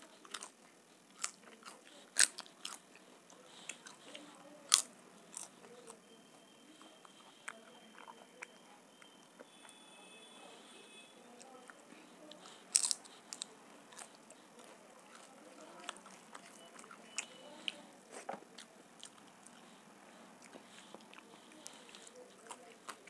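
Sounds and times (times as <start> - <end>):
close-up chewing: 0.0 - 23.0
crisp papad crunching: 12.0 - 19.7.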